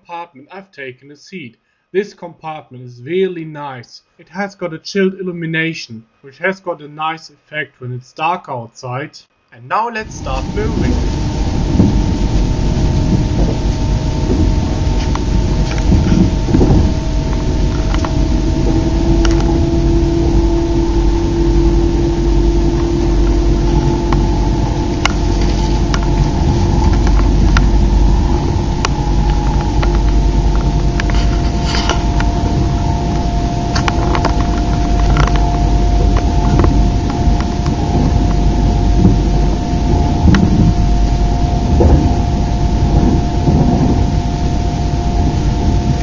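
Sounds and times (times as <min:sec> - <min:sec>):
constant tonal hum: 0:10.0 - 0:46.0
train rumble inside compartment: 0:10.1 - 0:46.0.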